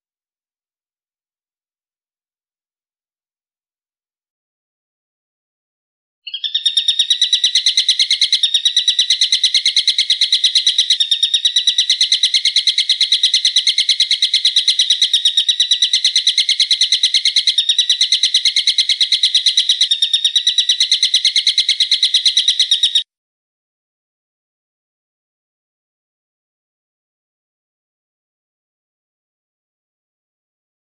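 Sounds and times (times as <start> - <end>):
bird trilling high notes: 6.3 - 23.0.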